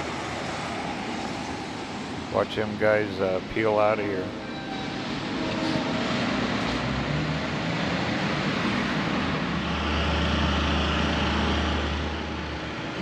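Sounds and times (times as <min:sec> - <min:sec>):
vehicles pulling away: 0:05.0 - 0:13.0
low engine hum: 0:05.8 - 0:13.0.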